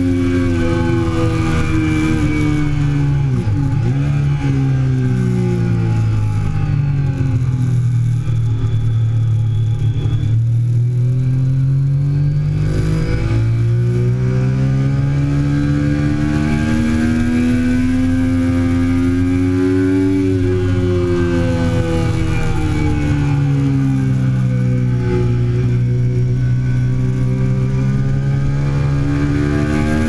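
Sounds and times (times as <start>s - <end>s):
motorcycle engine running hard: 0.0s - 30.0s.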